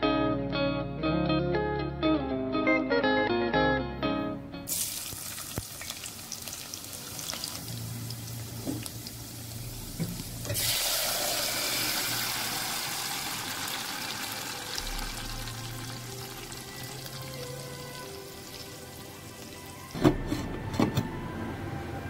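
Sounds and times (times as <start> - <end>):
onions sizzling in oil: 4.7 - 19.9.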